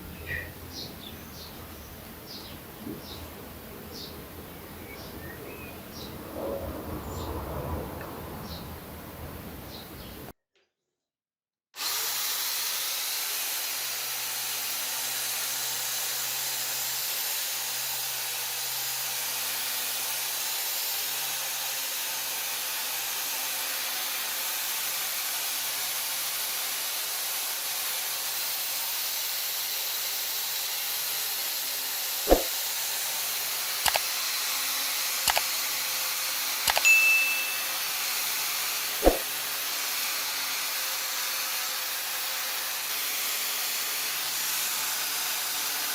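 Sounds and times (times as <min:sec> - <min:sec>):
compressed air hissing: 0:32.3 - 0:32.6, 0:39.0 - 0:39.4
sharp clicks or knocks: 0:36.7 - 0:36.9, 0:39.0 - 0:39.3.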